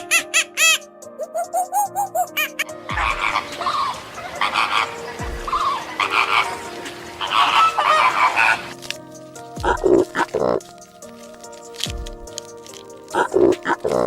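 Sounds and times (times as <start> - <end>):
animal rasping croaks: 2.3 - 8.8, 9.6 - 10.7, 13.1 - 14.0.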